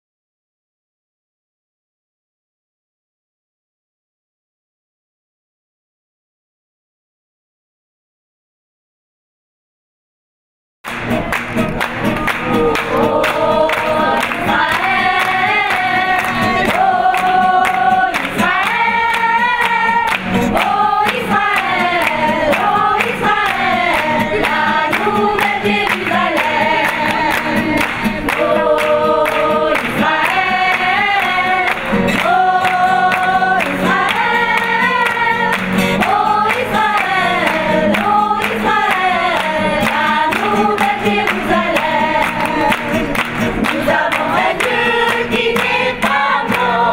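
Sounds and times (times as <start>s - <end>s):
choir singing in harmony: 12.5s - 46.9s.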